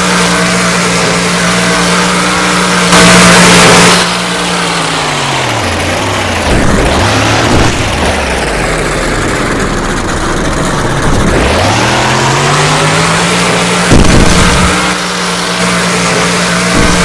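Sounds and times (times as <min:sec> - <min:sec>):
truck motor running: 0:00.0 - 0:17.0
sharp knock: 0:06.4 - 0:08.4, 0:13.9 - 0:14.9, 0:16.8 - 0:17.0.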